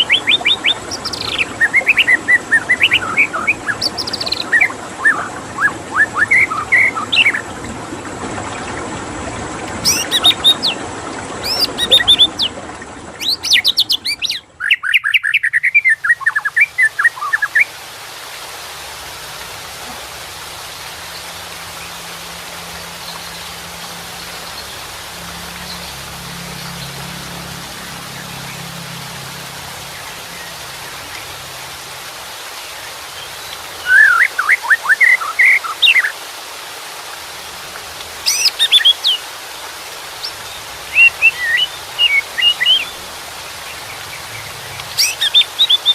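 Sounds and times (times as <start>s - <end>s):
running water: 0.0s - 45.9s
bird singing whistled phrases: 0.1s - 7.4s, 9.8s - 10.8s, 11.4s - 12.5s, 13.2s - 17.7s, 33.8s - 36.1s, 38.3s - 39.2s, 40.9s - 43.0s.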